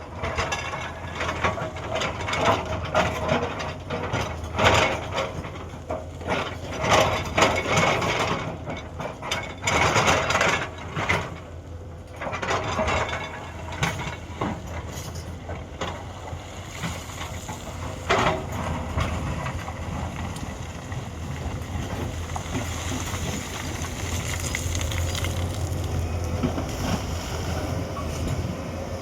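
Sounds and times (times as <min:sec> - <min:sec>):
excavator diesel engine running: 0:00.1 - 0:29.0
bucket clattering and grinding rock: 0:16.8 - 0:28.5.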